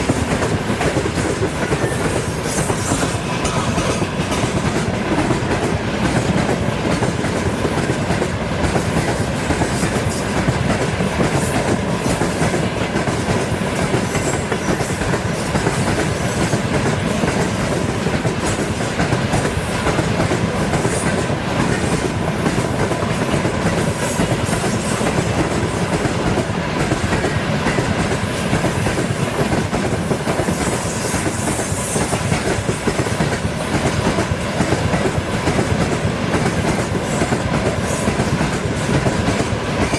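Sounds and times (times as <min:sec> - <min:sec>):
freight train wheels clickety-clack: 0:00.0 - 0:39.9.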